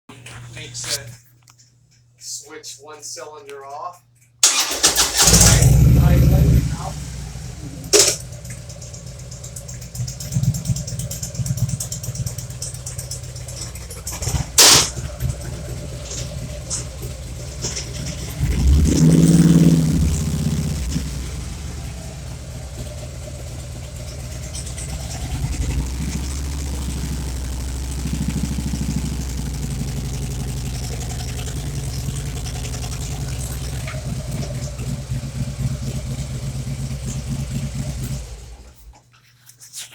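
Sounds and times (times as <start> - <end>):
motorcycle engine revving and idling: 4.4 - 39.0.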